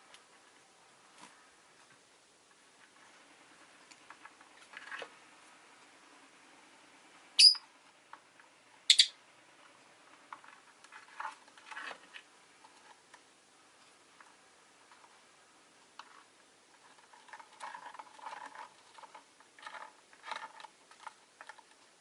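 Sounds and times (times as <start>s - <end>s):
high-pitched bird chirps: 7.4s - 7.6s, 8.9s - 9.2s.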